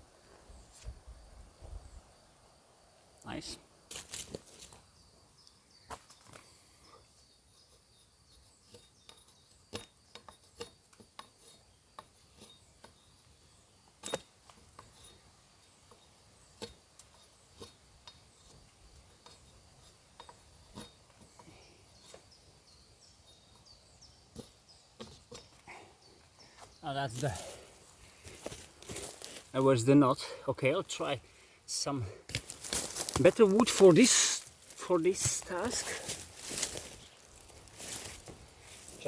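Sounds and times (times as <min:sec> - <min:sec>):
machete carving wood: 0:08.4 - 0:13.1.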